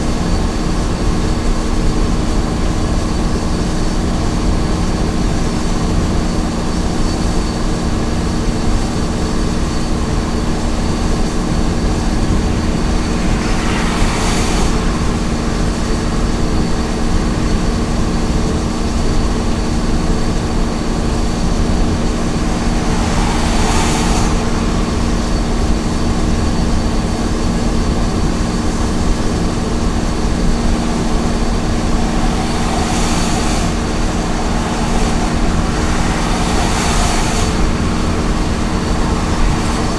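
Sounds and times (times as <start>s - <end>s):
truck engine cruising: 0.1s - 39.9s
tyre and road noise: 8.9s - 39.9s
whooshing swells: 10.3s - 39.9s.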